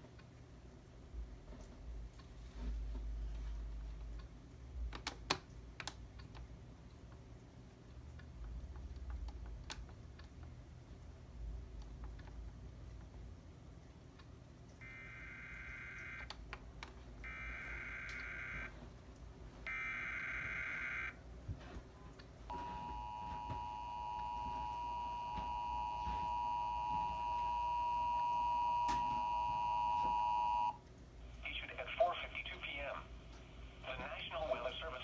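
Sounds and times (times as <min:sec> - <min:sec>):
two-tone alert signal: 0:22.5 - 0:30.8.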